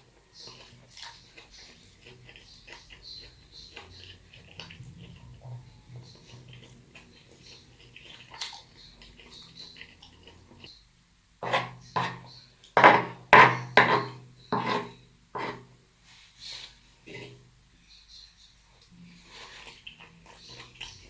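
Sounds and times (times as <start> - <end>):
loud eating smacks and crunches: 0.4 - 5.2, 6.0 - 10.6
person chewing: 0.4 - 10.7, 19.3 - 21.0.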